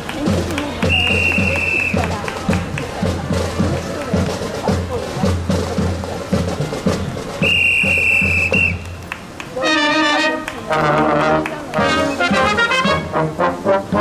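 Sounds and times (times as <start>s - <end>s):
brass band playing chords: 0.0s - 14.0s
long whistle blast: 7.4s - 8.9s.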